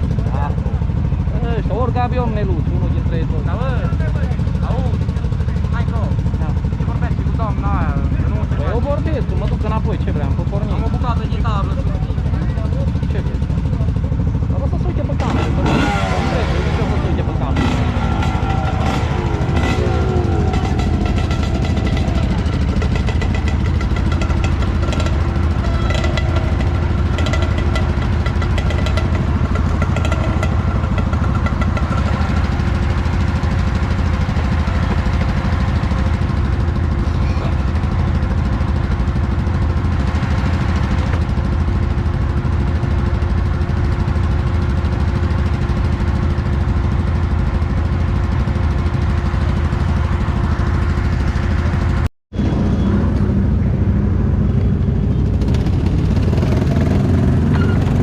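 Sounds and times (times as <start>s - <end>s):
off-road vehicle engine running: 0.0s - 58.0s
steady tones: 15.1s - 37.0s.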